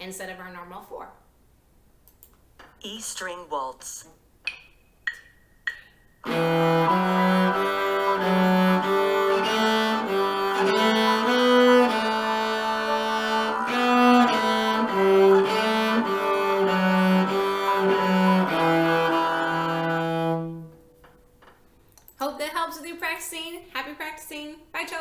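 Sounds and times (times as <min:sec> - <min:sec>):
cello playing waltz tune: 0:06.3 - 0:20.9.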